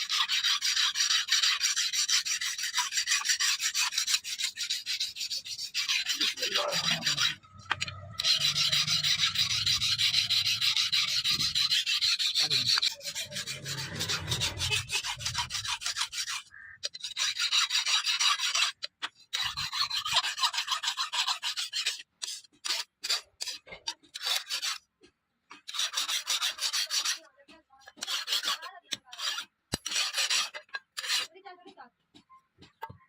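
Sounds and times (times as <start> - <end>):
knife blade being sharpened: 0.0 - 18.8, 28.0 - 31.3.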